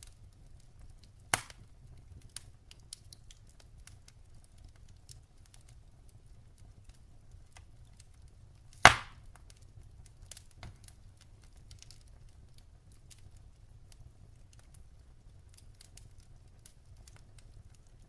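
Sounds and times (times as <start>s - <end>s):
wood fire crackling: 0.0s - 18.0s
loud pop from burning logs: 1.2s - 3.0s, 8.7s - 9.6s, 10.2s - 11.0s.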